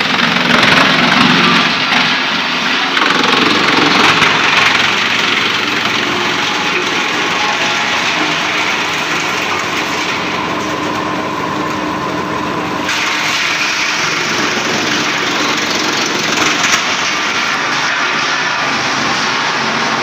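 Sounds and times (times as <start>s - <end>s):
wood chipper chipping wood: 0.0s - 20.0s.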